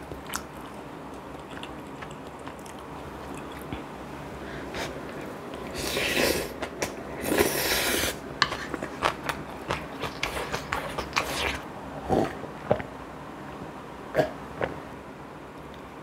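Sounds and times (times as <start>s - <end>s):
chewing clicks and smacks: 0.1s - 3.8s.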